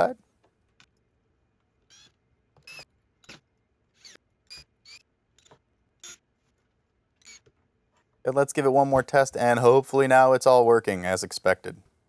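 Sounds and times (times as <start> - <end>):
squeaky screws being driven: 1.8 - 6.3, 7.2 - 7.6.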